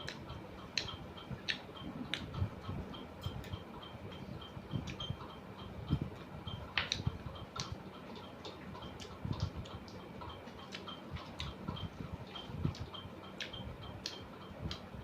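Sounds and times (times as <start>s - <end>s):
steady light ticking: 0.0s - 15.0s
person chewing food: 6.7s - 14.8s.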